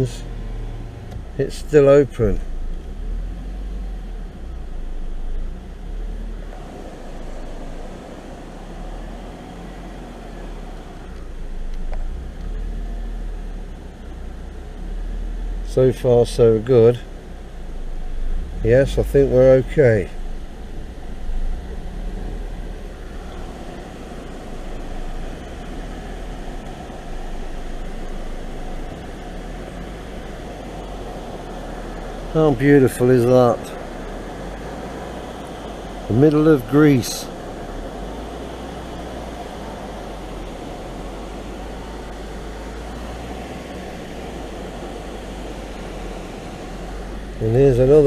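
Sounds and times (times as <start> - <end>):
car driving slowly: 0.0 - 48.0.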